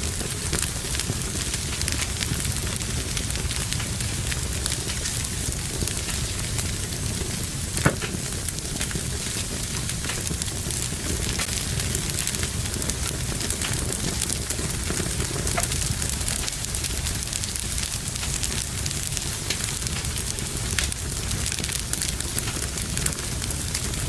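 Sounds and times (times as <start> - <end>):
fire crackling and popping: 0.0 - 24.0
fire hissing: 0.0 - 24.0.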